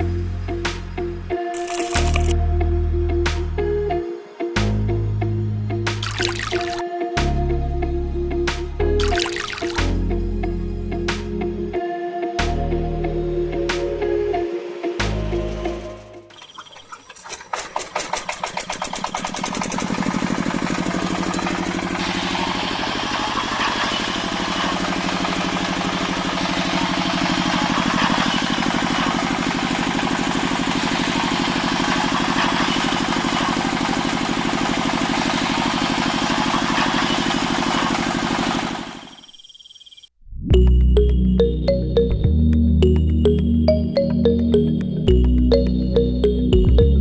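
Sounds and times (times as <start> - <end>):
engine idling: 17.4 - 39.2.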